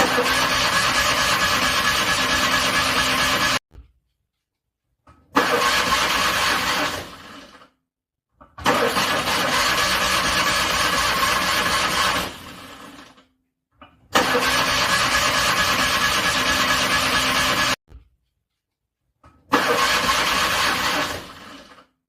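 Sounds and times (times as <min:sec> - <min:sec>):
car engine cranking on starter: 0:00.0 - 0:03.6, 0:05.3 - 0:07.6, 0:08.6 - 0:13.1, 0:14.1 - 0:17.8, 0:19.5 - 0:21.9.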